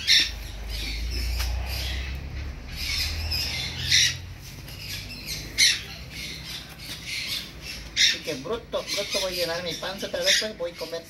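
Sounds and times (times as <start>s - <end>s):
bird squawking: 0.0s - 11.0s
low rumble: 0.2s - 6.5s.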